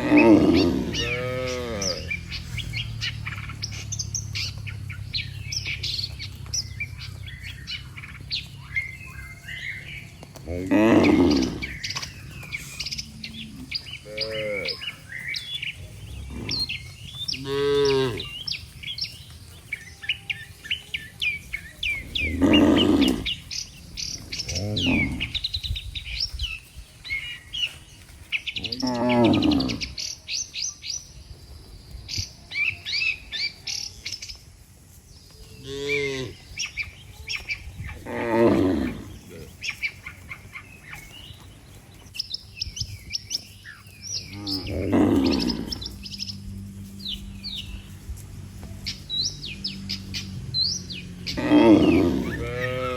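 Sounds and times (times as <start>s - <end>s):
cattle mooing: 0.0s - 15.0s, 15.8s - 18.5s, 21.8s - 25.4s, 28.6s - 30.1s, 35.6s - 36.5s, 37.8s - 40.2s, 44.1s - 47.6s, 48.6s - 52.9s
small birds chirping: 0.0s - 52.9s.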